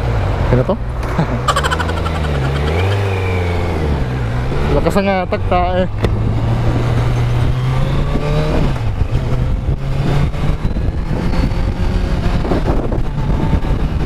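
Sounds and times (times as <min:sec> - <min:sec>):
motorcycle engine accelerating: 0:01.5 - 0:04.8
wind rushing across microphone: 0:06.0 - 0:14.0.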